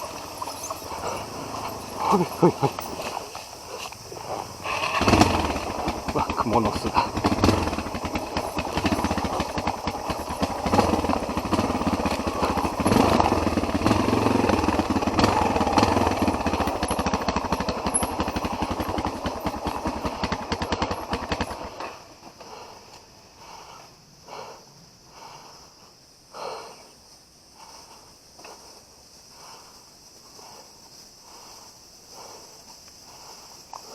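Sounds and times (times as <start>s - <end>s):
faint rustles: 0.0s - 20.1s
motorcycle engine running: 0.0s - 22.8s.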